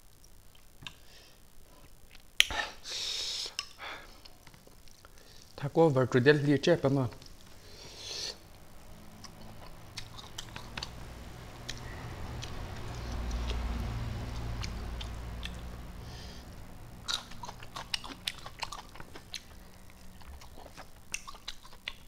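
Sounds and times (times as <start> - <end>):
low rumble: 8.4 - 21.2
man chewing and lip smacking: 9.1 - 15.8, 17.0 - 22.0.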